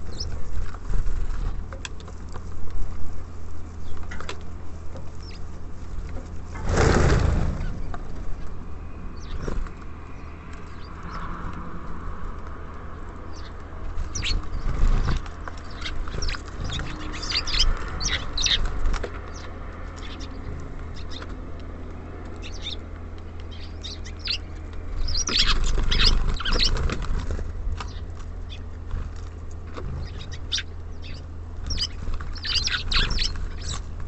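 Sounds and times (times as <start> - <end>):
small birds chirping: 0.0 - 6.5, 7.5 - 11.5, 12.8 - 34.0
wings flapping: 13.9 - 19.4, 23.4 - 34.0.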